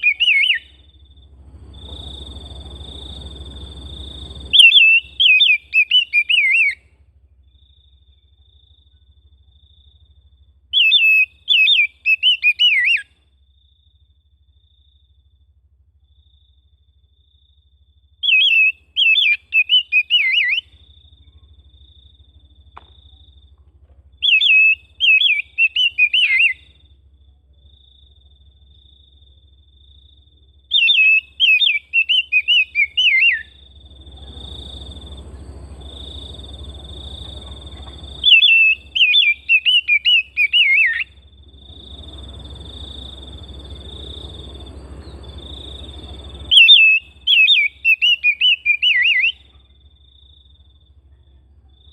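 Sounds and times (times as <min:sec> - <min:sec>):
bird whistling song: 0:00.0 - 0:01.1, 0:01.7 - 0:06.9, 0:10.7 - 0:13.2, 0:18.2 - 0:22.1, 0:24.2 - 0:26.9, 0:30.7 - 0:49.6
low hum: 0:00.0 - 0:47.4.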